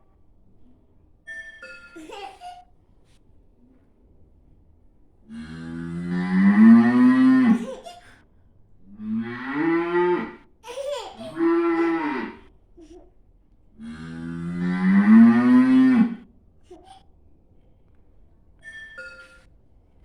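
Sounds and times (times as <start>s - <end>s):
cow mooing: 5.3s - 7.6s, 9.0s - 10.4s, 11.4s - 12.4s, 13.8s - 16.2s.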